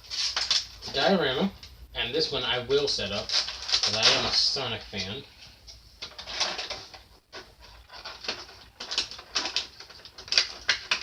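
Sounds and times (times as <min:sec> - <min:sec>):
packaging crinkling: 0:00.0 - 0:00.8, 0:03.1 - 0:05.1, 0:06.0 - 0:11.0.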